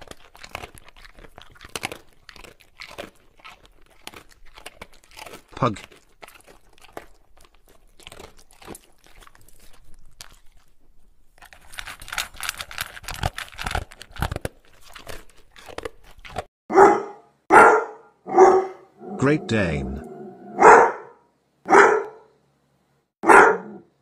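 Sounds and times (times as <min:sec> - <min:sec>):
dog chewing crunching: 0:00.0 - 0:16.5
dog barking: 0:16.7 - 0:19.2, 0:20.0 - 0:22.4, 0:23.2 - 0:23.9.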